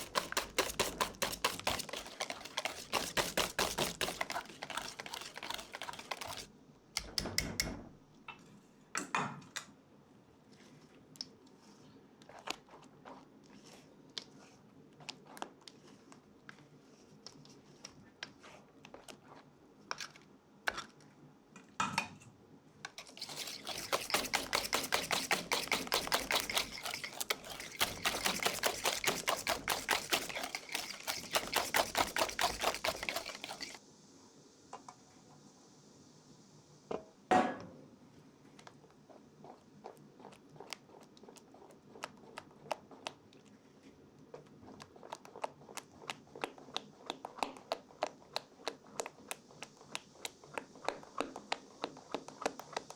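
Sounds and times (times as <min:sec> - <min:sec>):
fast even strokes: 0:00.0 - 0:06.5, 0:23.0 - 0:33.8
utensils clicking and tapping: 0:00.0 - 0:07.8, 0:23.0 - 0:33.8
faint hiss: 0:33.8 - 0:39.4.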